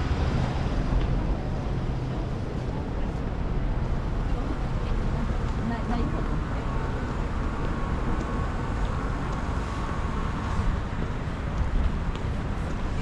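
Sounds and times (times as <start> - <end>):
traffic rumble: 0.0 - 13.0
wind buffeting microphone: 0.0 - 13.0.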